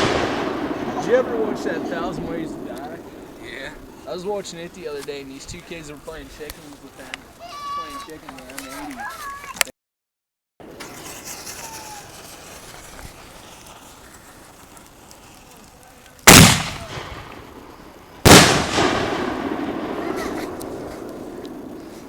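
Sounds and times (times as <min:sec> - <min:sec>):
firework bangs: 0:00.0 - 0:07.2, 0:10.6 - 0:22.0
firework crackle: 0:00.0 - 0:09.5, 0:10.6 - 0:22.0.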